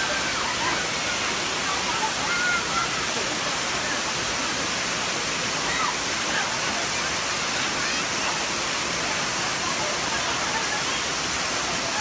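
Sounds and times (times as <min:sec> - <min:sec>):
faint voices: 0:00.0 - 0:12.0
waterfall rushing: 0:00.0 - 0:12.0.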